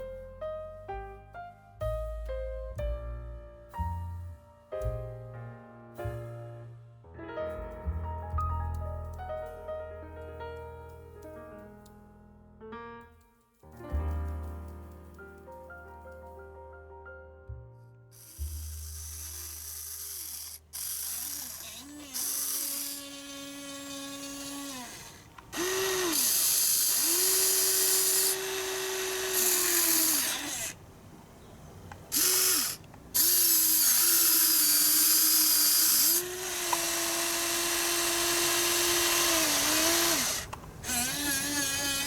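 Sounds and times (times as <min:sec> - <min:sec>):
small electric motors whining: 0:18.2 - 0:30.8, 0:32.0 - 0:42.0.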